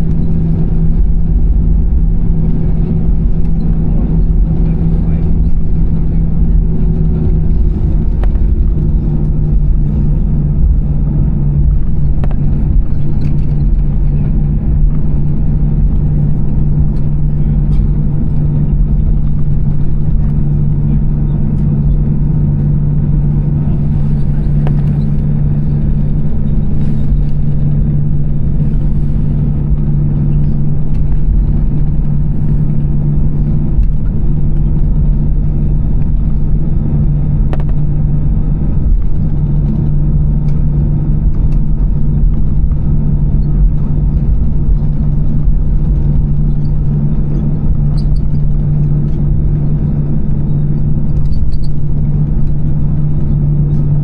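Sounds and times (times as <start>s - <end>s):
aircraft cabin engine rumble: 0.0s - 54.0s.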